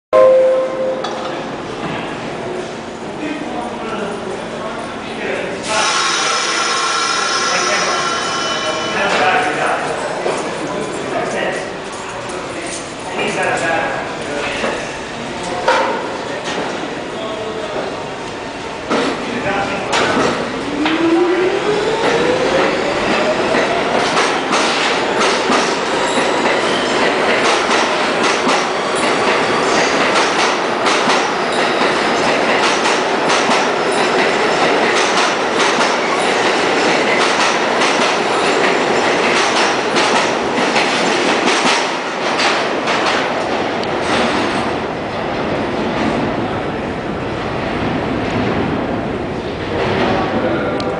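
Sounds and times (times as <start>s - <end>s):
subway train motor whine: 0.2s - 9.0s, 16.1s - 41.4s.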